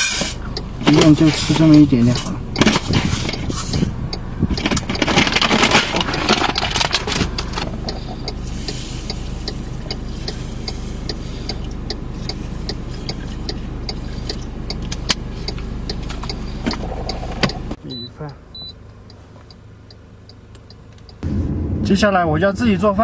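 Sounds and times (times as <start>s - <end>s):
clattering and rustling objects: 0.0s - 8.2s
car engine starting and idling: 0.0s - 23.0s
light regular ticking: 0.1s - 21.2s.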